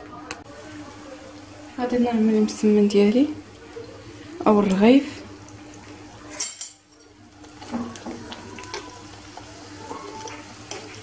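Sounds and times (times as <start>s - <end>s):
flatbread sizzling in oil: 0.4s - 11.0s.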